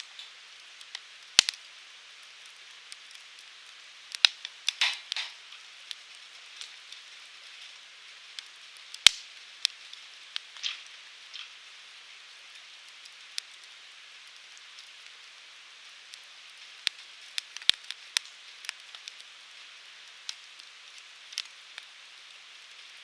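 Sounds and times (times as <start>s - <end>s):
fire crackling and popping: 0.0s - 23.0s
firewood hissing: 9.9s - 13.6s.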